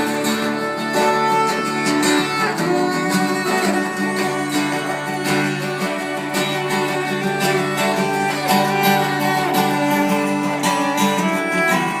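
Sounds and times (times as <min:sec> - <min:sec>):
plucked strings repeated notes: 0:00.0 - 0:12.0.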